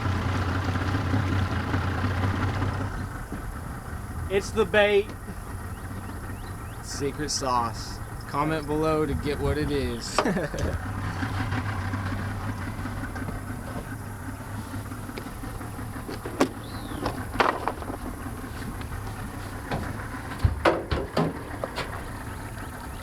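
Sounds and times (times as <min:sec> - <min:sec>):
boat motor humming: 0:00.0 - 0:23.0
knocks from handling gear: 0:16.1 - 0:19.0, 0:19.7 - 0:21.9.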